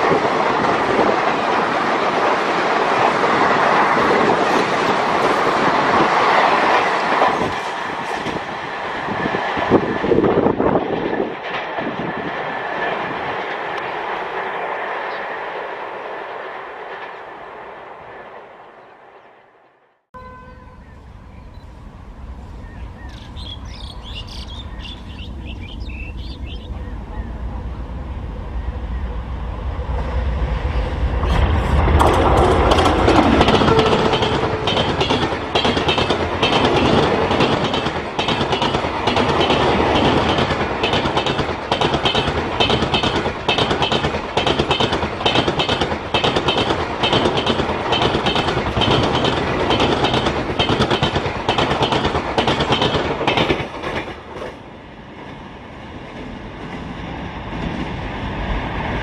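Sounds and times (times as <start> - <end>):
diesel locomotive engine rumble: 20.2 - 59.0
wheels clickety-clack: 31.9 - 54.6.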